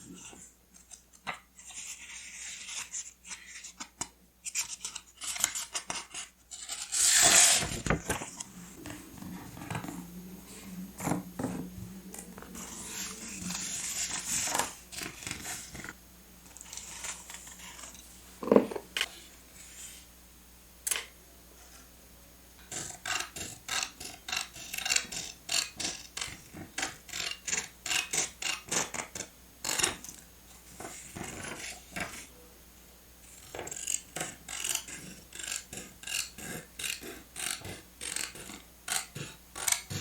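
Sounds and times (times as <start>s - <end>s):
paper rustling and crinkling: 7.2s - 9.9s.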